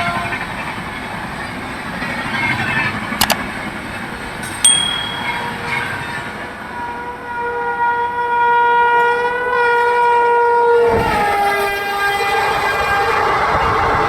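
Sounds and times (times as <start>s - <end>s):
train horn blast: 6.7s - 14.0s.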